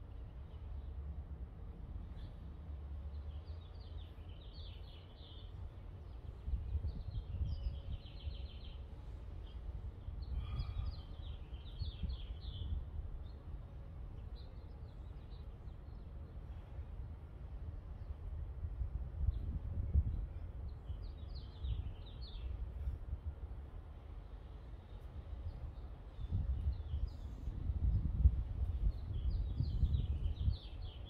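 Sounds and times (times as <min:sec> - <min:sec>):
small birds twittering: 0:03.1 - 0:13.4.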